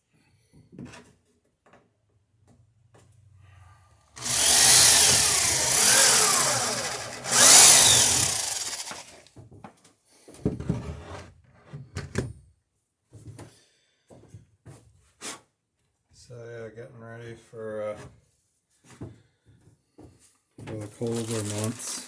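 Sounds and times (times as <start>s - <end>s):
power tool running: 4.2s - 9.2s, 21.0s - 22.0s.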